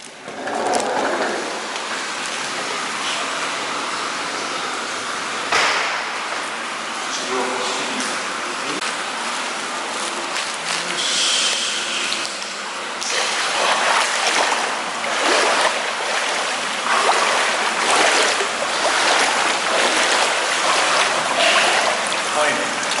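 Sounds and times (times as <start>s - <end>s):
water running and splashing: 13.0s - 23.0s.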